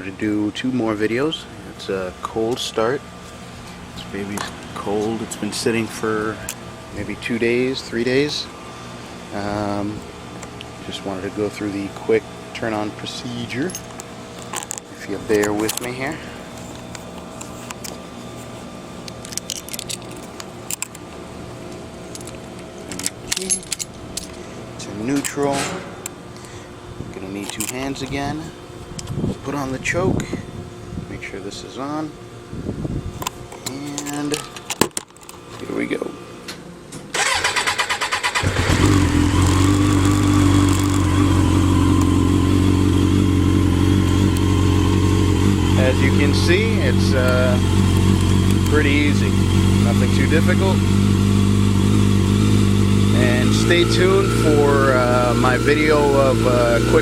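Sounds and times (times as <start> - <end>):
low background hum: 0.0 - 57.0
key jingling and switch clicks: 22.1 - 24.4
starter motor cranking: 37.1 - 42.4
motorcycle engine idling: 37.2 - 57.0.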